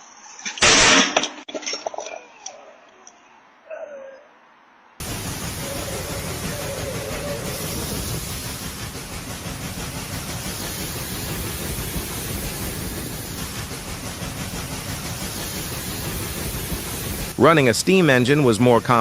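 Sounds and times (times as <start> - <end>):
train rumbling: 5.0 - 19.0.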